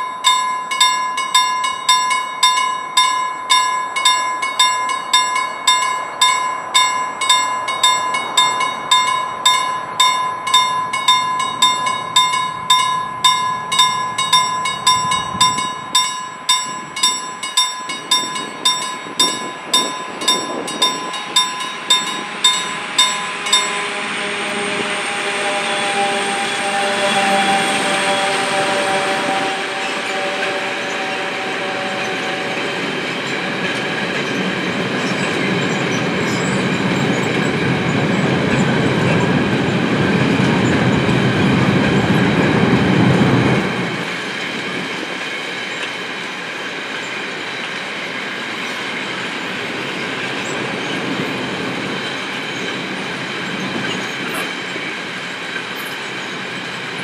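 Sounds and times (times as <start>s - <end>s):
diesel locomotive engine: 0.0s - 57.0s
thin high squeal: 21.6s - 33.5s.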